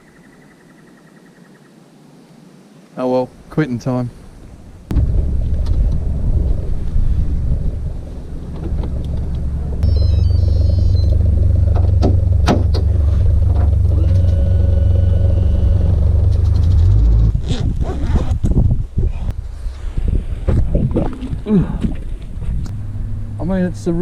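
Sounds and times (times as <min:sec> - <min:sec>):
boat motor rumbling: 0:04.9 - 0:17.4
high electronic beeps: 0:09.8 - 0:11.1.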